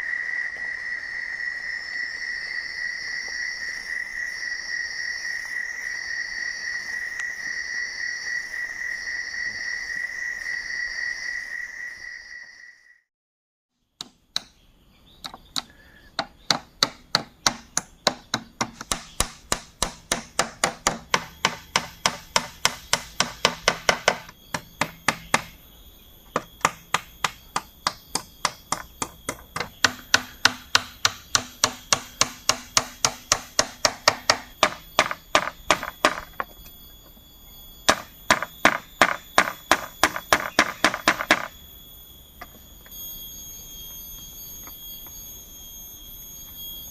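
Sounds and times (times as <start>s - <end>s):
chopping strikes on bamboo: 14.0s - 14.6s, 15.2s - 25.5s, 26.6s - 36.2s.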